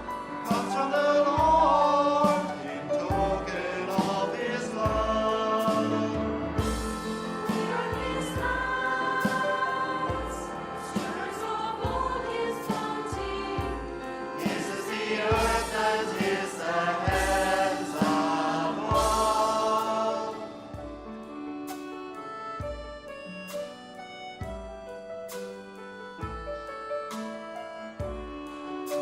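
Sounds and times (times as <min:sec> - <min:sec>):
group singing a hymn: 0:00.0 - 0:21.1
praise band playing: 0:00.0 - 0:29.0.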